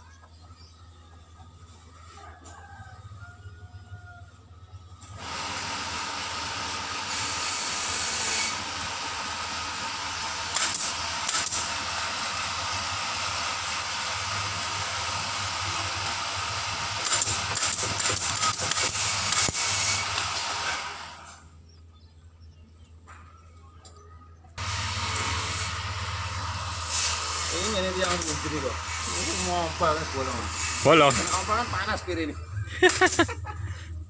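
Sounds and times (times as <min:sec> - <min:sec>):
compressed air hissing: 0:24.6 - 0:31.8.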